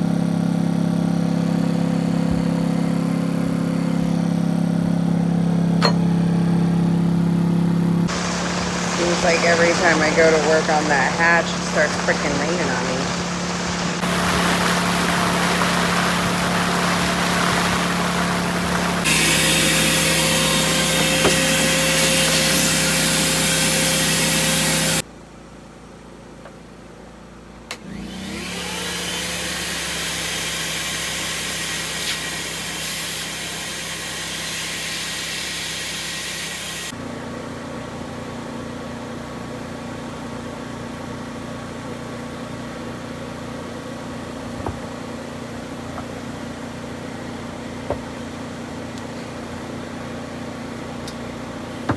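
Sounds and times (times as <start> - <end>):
low hum: 1.5 - 19.1
power tool whirring: 8.1 - 25.0.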